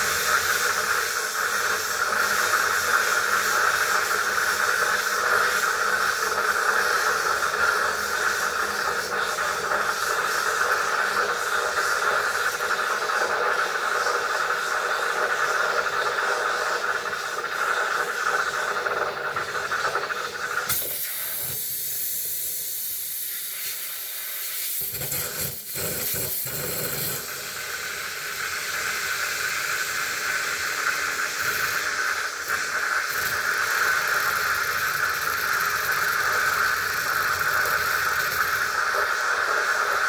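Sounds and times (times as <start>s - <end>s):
hot-air tool hissing: 0.0s - 40.0s.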